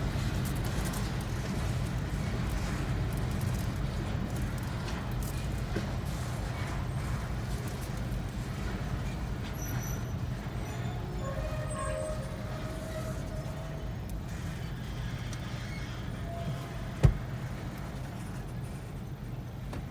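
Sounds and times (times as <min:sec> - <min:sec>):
faint thin squeal: 0:09.6 - 0:13.8, 0:14.6 - 0:17.0.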